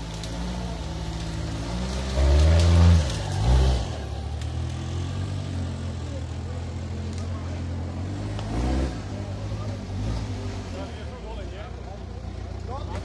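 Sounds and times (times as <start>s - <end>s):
engine running and revving: 0.0s - 13.0s.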